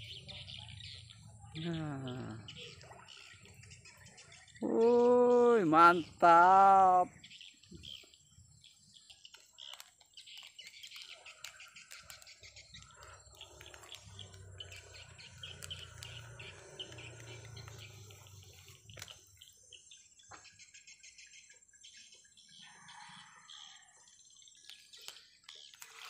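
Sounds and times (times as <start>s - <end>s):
birds chirping faintly: 0.0s - 26.0s.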